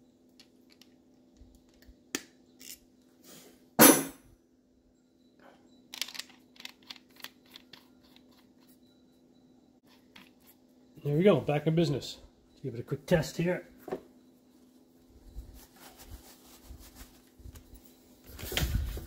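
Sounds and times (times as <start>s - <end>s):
metal parts clicking: 5.9s - 8.7s.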